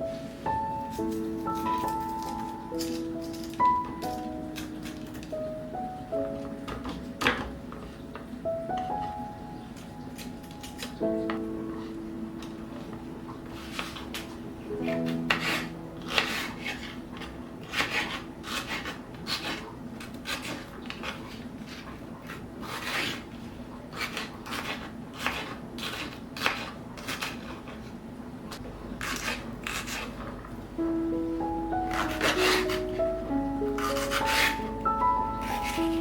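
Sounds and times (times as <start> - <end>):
kitchen utensil scraping food: 14.9 - 27.9, 29.0 - 30.4, 31.9 - 33.0, 33.7 - 36.0.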